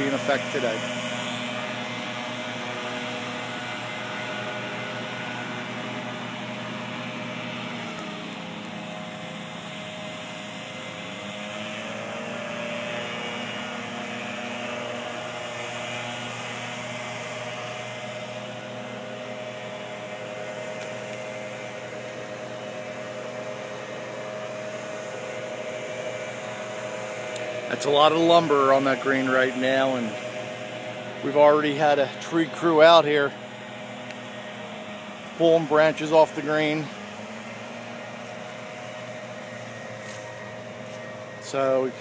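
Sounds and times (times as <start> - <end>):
mechanical hum with hiss: 0.0 - 42.0.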